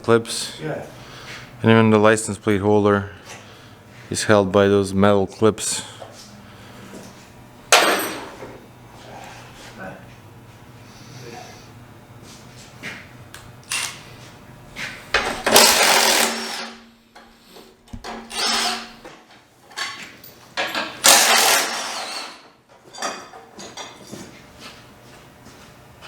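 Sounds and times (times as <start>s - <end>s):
handheld power tool running: 15.2s - 16.8s, 18.3s - 19.0s, 21.0s - 22.4s.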